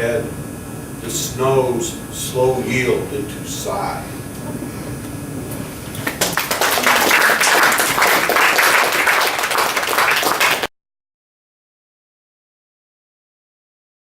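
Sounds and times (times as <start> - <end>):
audience applauding: 6.0 - 10.7.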